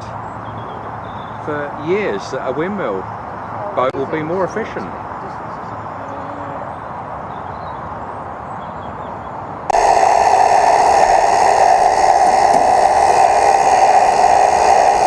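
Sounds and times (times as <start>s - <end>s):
loud whir of fixed tones: 9.7s - 15.0s.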